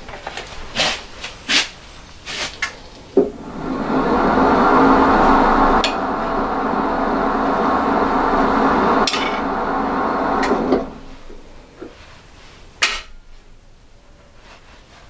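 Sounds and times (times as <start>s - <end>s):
wood lathe cutting: 2.7s - 11.3s.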